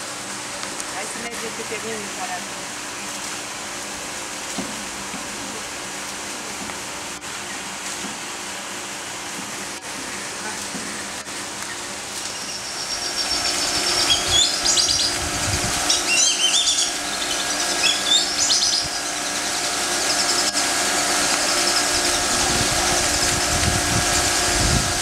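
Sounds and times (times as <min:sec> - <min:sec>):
steady mechanical hum: 0:00.0 - 0:25.0
birds chirping: 0:10.2 - 0:20.6, 0:21.4 - 0:23.1.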